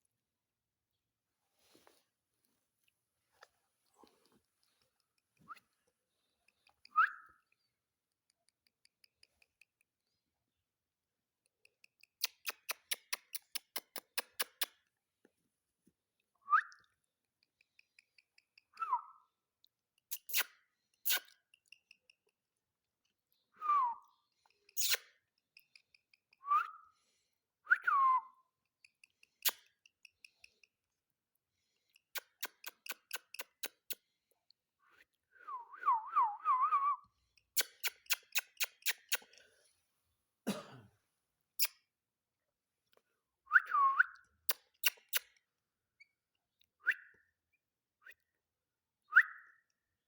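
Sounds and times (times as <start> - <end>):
short whistled notes: 23.6 - 24.1.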